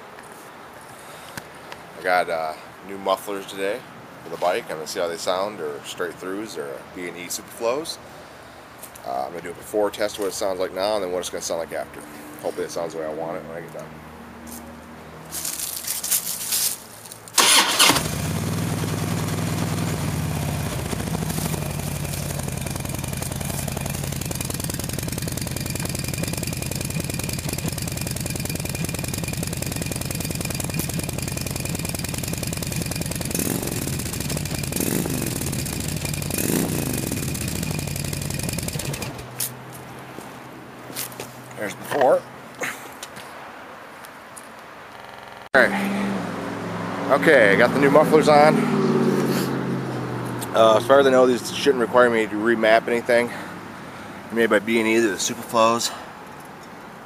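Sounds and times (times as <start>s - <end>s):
motorcycle engine idling: 17.4s - 39.4s.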